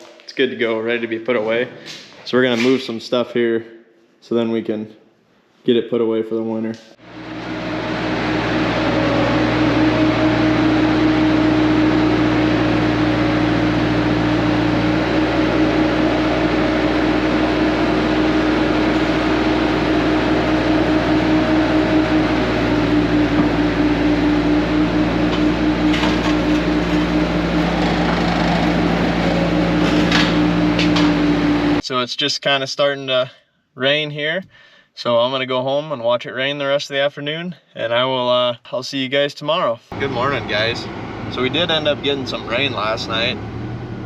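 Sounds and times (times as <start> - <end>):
vehicle engine running: 7.0 - 31.8, 39.9 - 44.0.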